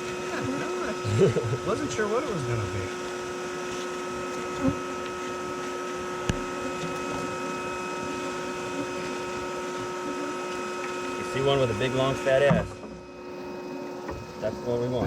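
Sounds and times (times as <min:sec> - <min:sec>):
vacuum motor humming: 0:00.0 - 0:15.0.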